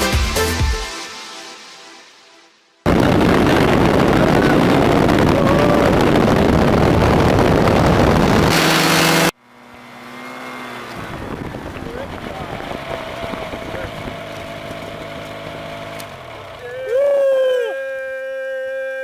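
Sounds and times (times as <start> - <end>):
wind buffeting microphone: 2.9 - 8.6, 11.0 - 15.4
paratrike engine humming: 2.9 - 18.5.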